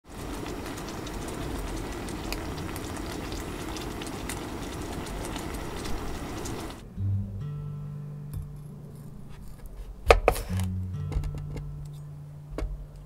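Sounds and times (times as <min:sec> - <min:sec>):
food sizzling in a pan: 0:00.0 - 0:06.8
small pops and crackles: 0:00.1 - 0:06.8.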